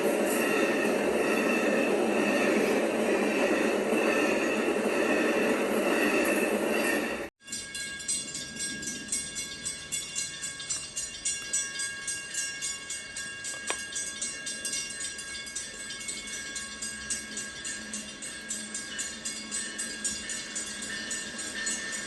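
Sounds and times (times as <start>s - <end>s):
train rumbling on rails: 0.0s - 22.0s
music with jingling beat: 7.4s - 22.0s.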